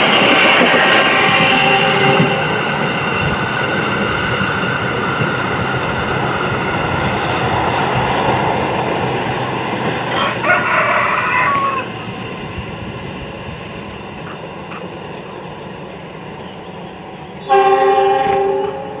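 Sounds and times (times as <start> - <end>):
train rumbling on rails: 0.0 - 19.0
locomotive horn blasts: 1.0 - 2.6, 17.4 - 19.0.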